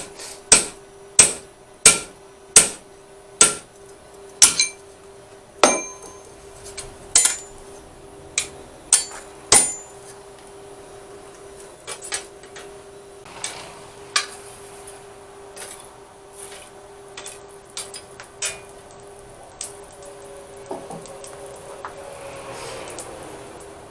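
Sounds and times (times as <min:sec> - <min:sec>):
hammer striking steel on anvil: 0:00.0 - 0:02.8, 0:03.4 - 0:03.7, 0:04.4 - 0:04.8, 0:05.6 - 0:06.4, 0:07.1 - 0:07.7, 0:08.4 - 0:10.2
steady hum: 0:00.0 - 0:22.1.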